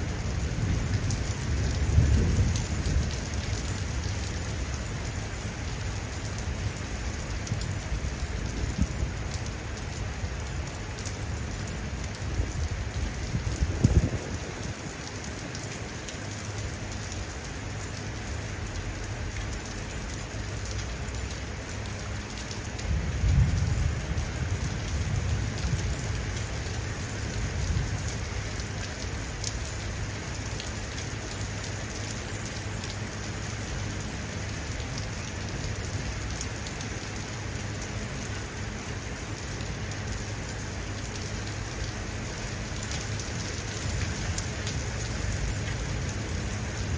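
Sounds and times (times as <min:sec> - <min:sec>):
low thunder rumble: 0:00.0 - 0:04.8, 0:12.3 - 0:15.0, 0:22.8 - 0:28.3
steady rain falling: 0:00.0 - 0:46.9.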